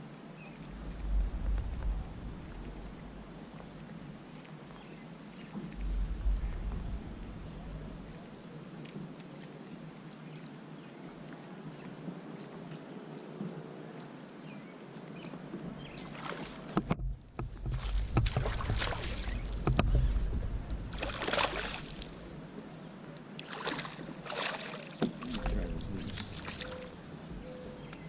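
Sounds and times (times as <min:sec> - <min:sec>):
low thuds: 0:00.6 - 0:04.2, 0:05.6 - 0:08.4, 0:16.7 - 0:22.5
water splashing: 0:00.6 - 0:08.6, 0:15.6 - 0:27.6
knocks on kayak hull: 0:16.7 - 0:20.6.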